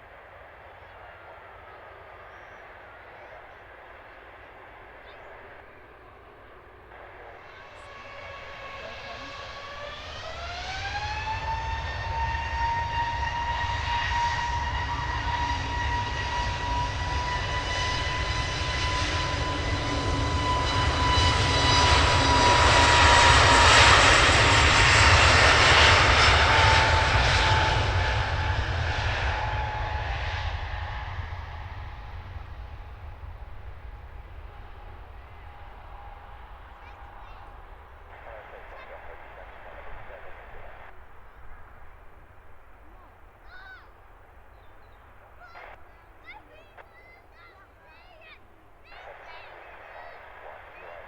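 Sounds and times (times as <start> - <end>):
jet engines spooling up: 2.7 - 43.4.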